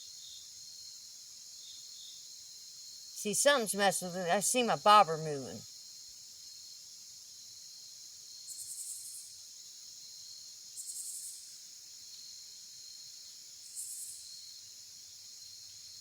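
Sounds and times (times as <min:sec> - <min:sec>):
buzzy insect call: 0:03.2 - 0:05.6.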